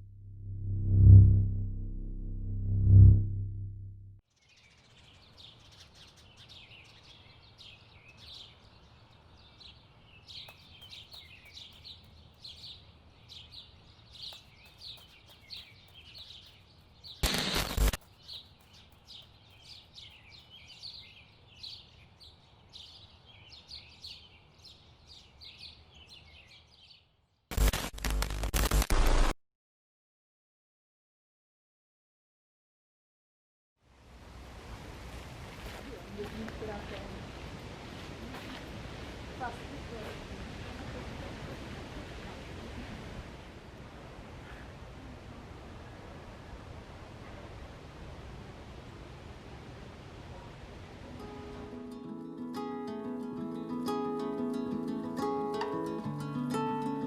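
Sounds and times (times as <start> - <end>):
birds chirping and singing: 9.4 - 17.2, 18.0 - 27.0
faint background noise: 33.9 - 57.0.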